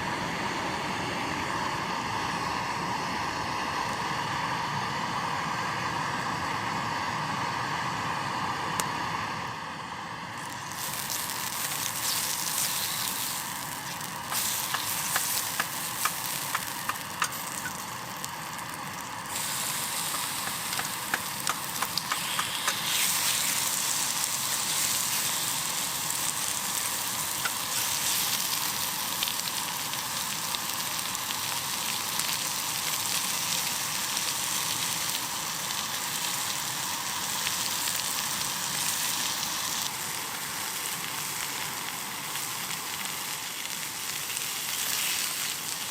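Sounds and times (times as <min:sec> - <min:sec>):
food sizzling in a pan: 0:10.2 - 0:45.9
popping crackles: 0:10.3 - 0:36.7.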